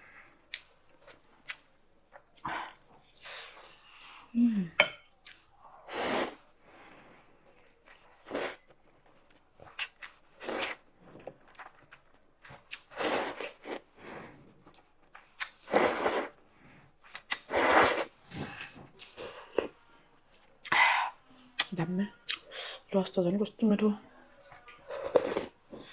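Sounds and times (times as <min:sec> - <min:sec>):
loud slurping of noodles: 0:05.9 - 0:06.4, 0:13.0 - 0:13.8, 0:15.7 - 0:16.3, 0:17.5 - 0:18.1.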